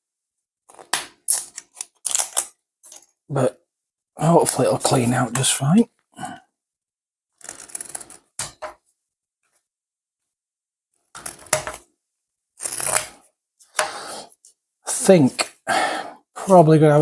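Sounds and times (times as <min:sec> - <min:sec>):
plastic crackling and snapping: 0:00.7 - 0:03.0.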